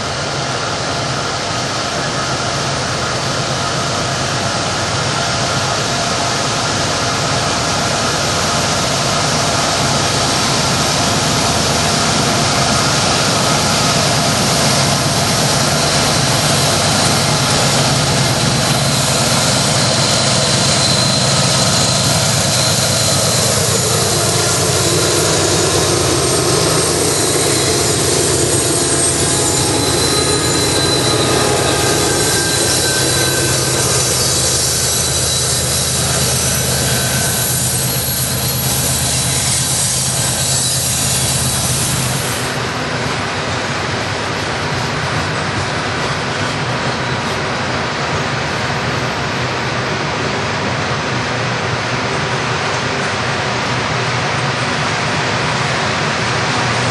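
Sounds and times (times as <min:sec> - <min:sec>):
diesel locomotive engine drone: 0:00.0 - 0:56.9
faint high whines: 0:08.0 - 0:42.7.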